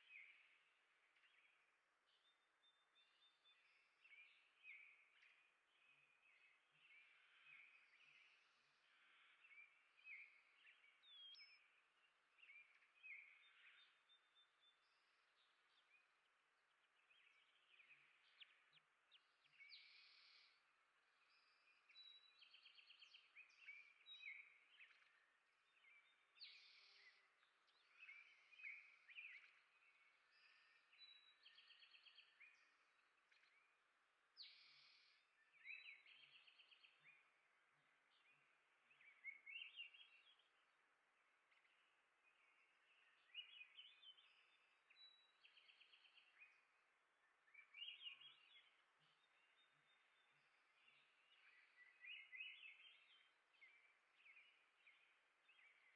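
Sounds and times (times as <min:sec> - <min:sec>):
songbirds chirping: 0:00.0 - 0:55.9.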